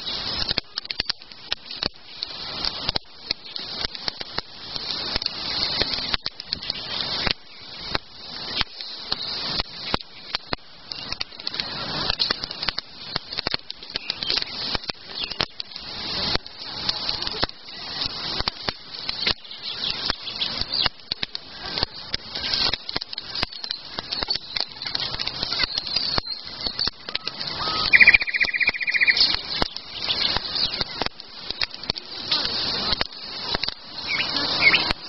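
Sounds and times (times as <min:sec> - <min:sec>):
campfire crackling: 0:00.0 - 0:35.0
bird trill: 0:23.5 - 0:30.9, 0:34.0 - 0:34.9.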